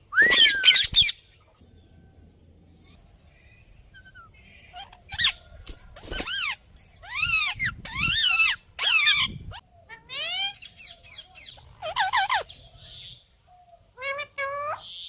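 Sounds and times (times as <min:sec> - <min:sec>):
parrots calling: 0:03.9 - 0:12.7.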